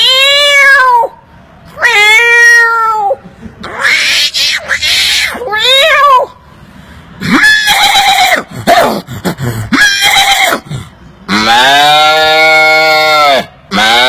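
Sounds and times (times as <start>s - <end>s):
man imitating animal calls: 7.2s - 14.0s.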